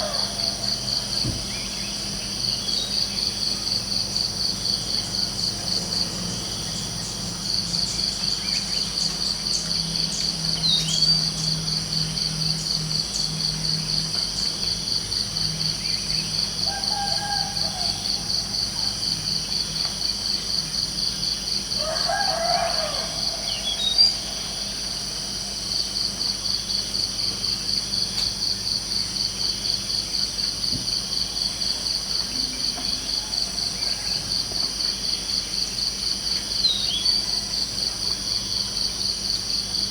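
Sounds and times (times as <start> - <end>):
rooster crowing: 0.0 - 1.2, 16.6 - 19.3, 21.7 - 25.5, 32.9 - 34.6
crickets chirping: 0.0 - 39.9.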